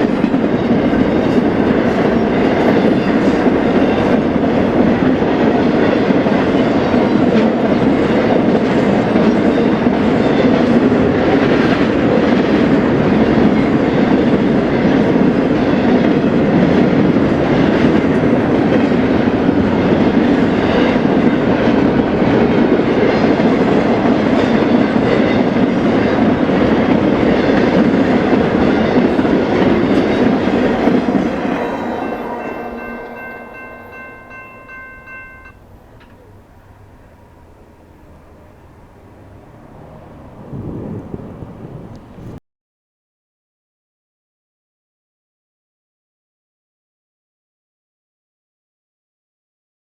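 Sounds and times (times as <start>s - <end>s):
freight train clattering over rails: 0.0s - 42.4s
steady high-pitched tone: 24.4s - 39.4s.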